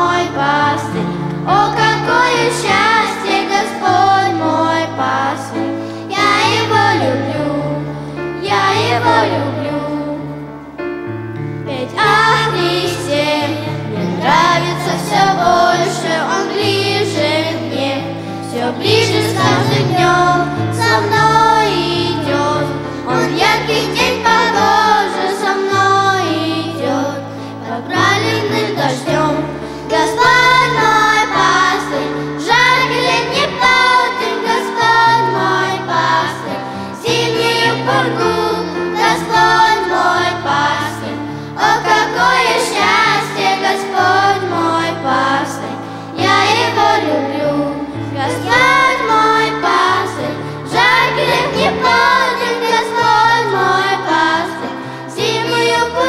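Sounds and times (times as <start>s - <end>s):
voices singing together: 0.0s - 10.4s, 11.7s - 56.0s
instrumental accompaniment: 0.0s - 56.0s.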